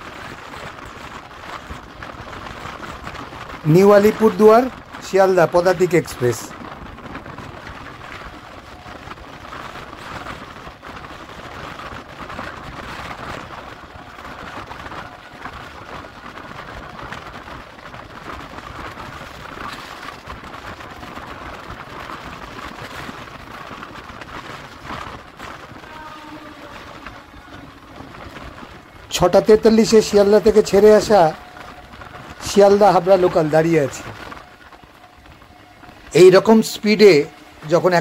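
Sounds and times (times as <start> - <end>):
train wheels on rails: 0.0 - 38.0
express train passing: 25.8 - 38.0.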